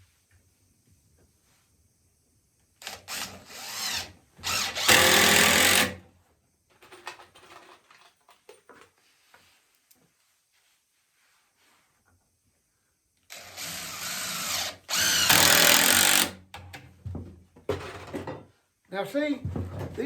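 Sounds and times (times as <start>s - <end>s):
power drill running: 2.8s - 6.0s, 13.3s - 16.4s.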